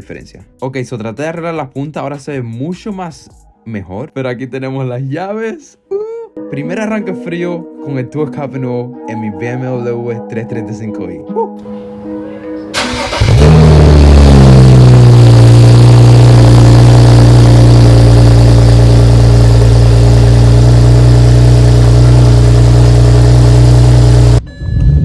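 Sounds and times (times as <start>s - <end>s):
loud car engine idling: 12.8s - 24.4s.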